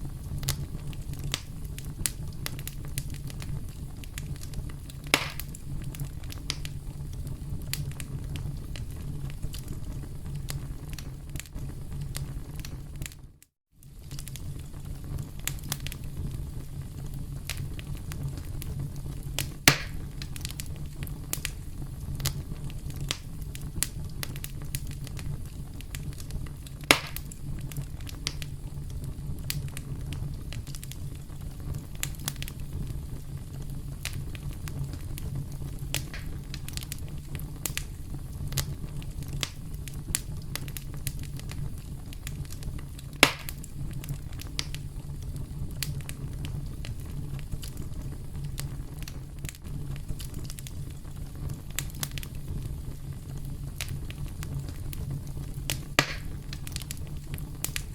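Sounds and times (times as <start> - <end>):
campfire crackling: 0.0 - 57.9
sharp fire pops: 0.0 - 57.9.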